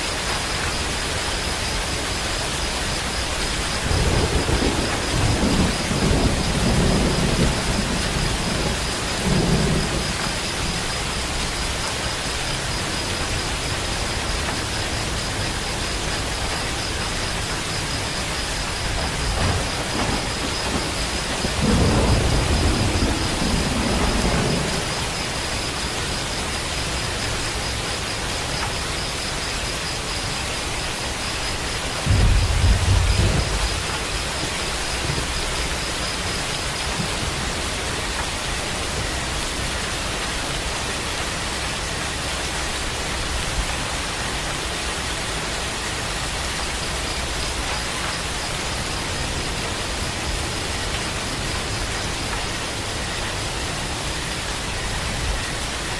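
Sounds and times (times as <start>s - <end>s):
steady rain falling: 0.0s - 55.9s
low rolls of thunder: 3.5s - 27.7s, 31.0s - 39.7s.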